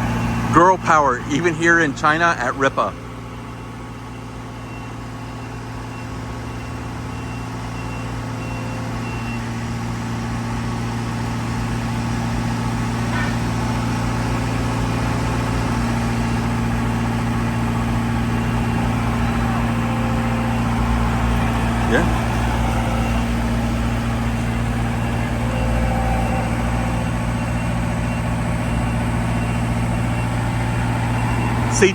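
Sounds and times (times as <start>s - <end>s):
skid steer engine running: 0.0s - 31.9s.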